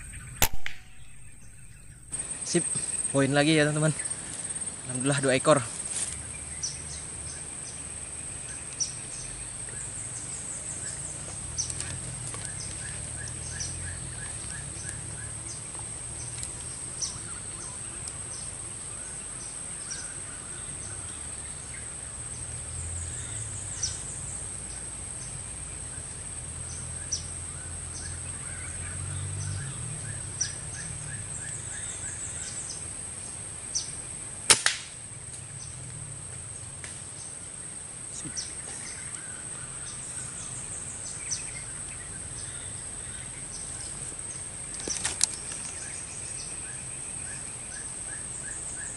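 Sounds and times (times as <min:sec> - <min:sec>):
sharp crack: 0:00.0 - 0:02.3, 0:34.4 - 0:35.4
short clicks: 0:00.4 - 0:01.9.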